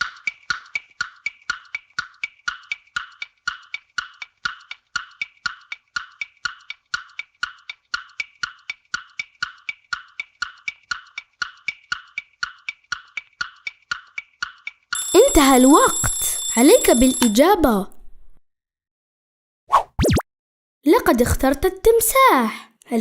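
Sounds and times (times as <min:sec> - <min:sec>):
wood-block ticking: 0:00.0 - 0:17.4.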